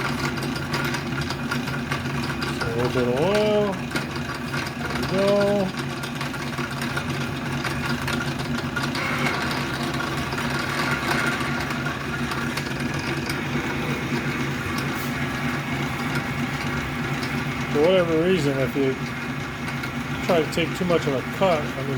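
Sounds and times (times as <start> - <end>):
lathe motor and gear hum: 0.0 - 21.9
drill bit cutting: 8.2 - 21.9.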